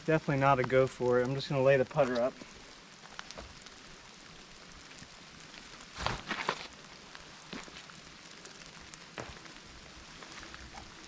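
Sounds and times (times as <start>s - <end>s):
rain pattering: 0.0s - 11.0s.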